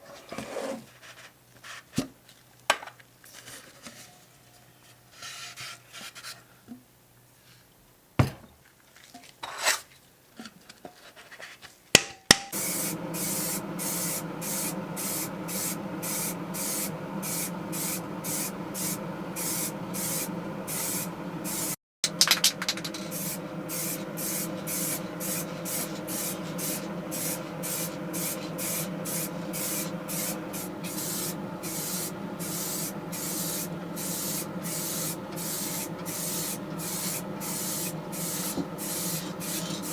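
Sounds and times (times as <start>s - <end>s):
small electric motor running: 12.6s - 21.8s, 22.7s - 39.9s
surface being sanded: 23.0s - 39.9s.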